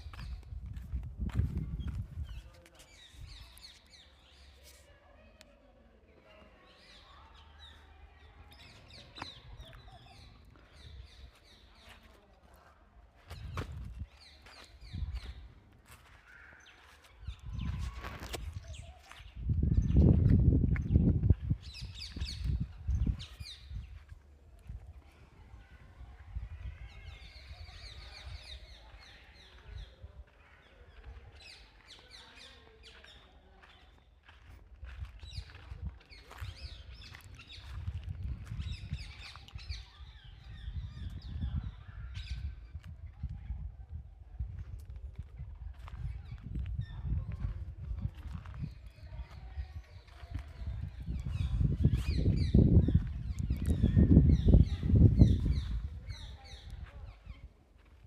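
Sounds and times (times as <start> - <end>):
small birds chirping: 0.0 - 43.8, 45.6 - 58.0
birds chirping: 6.4 - 12.4.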